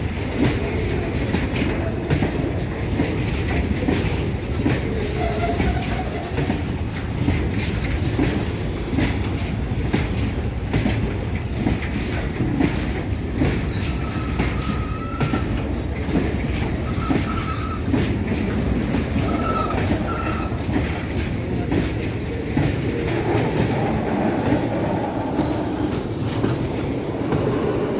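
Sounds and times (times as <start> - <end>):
train wheels clattering over rail joints: 0.0 - 27.9.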